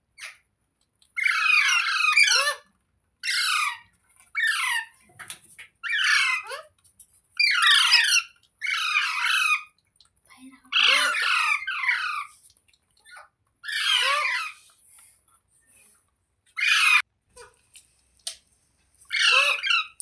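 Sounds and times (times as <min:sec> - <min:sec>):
parrot squawking: 0:01.2 - 0:02.6, 0:03.2 - 0:03.8, 0:05.8 - 0:06.6, 0:07.4 - 0:09.7, 0:10.7 - 0:12.3, 0:13.1 - 0:14.6, 0:16.6 - 0:17.0, 0:19.1 - 0:20.0.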